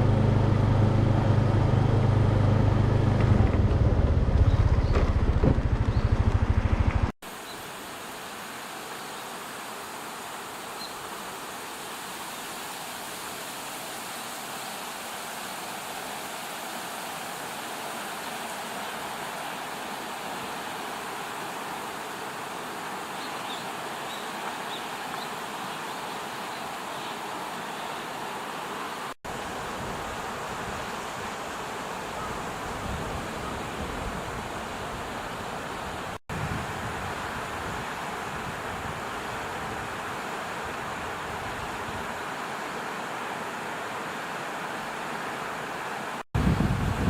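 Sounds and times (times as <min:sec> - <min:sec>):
engine humming and throbbing: 0:00.0 - 0:07.1
river water flowing: 0:06.3 - 0:47.0.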